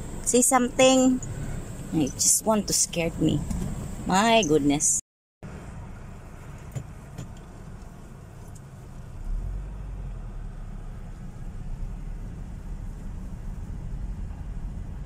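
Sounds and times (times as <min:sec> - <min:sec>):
car driving on gravel: 0:05.5 - 0:15.0.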